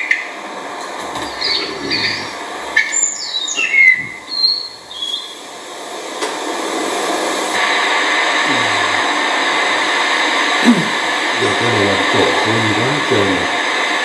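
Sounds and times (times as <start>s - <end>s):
steady rushing hiss: 0.4s - 14.0s
bird whistled song: 2.9s - 5.4s.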